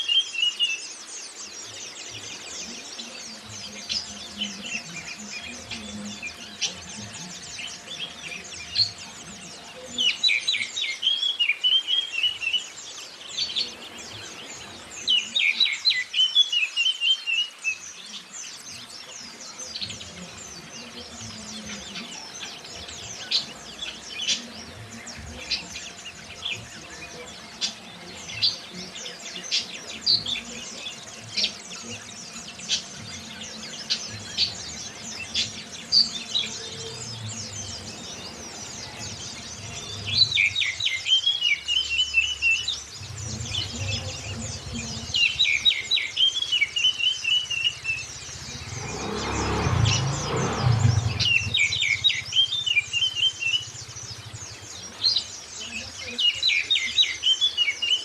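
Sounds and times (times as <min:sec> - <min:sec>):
broad rushing noise: 0:19.8 - 0:41.8, 0:42.4 - 0:55.8.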